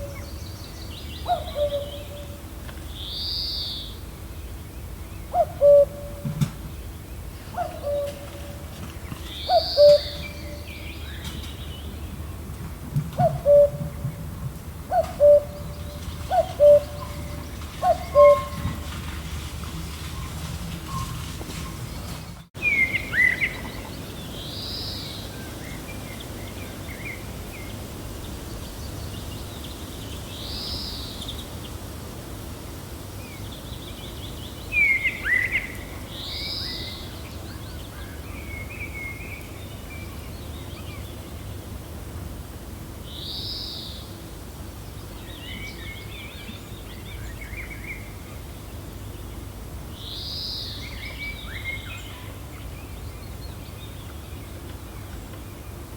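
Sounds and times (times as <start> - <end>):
birds chirping: 0.0 - 12.4, 13.2 - 31.8
gentle wind blowing: 0.0 - 55.9.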